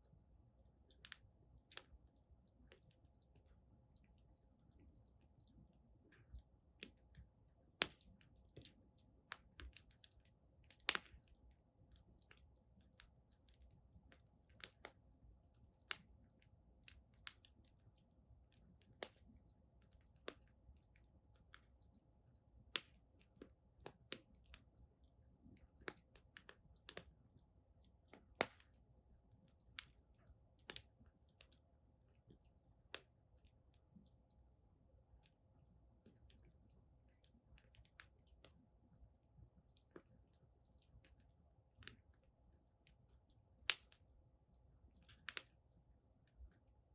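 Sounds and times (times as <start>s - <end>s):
faint low hum: 0.0s - 46.9s
wood fire crackling: 0.1s - 46.9s.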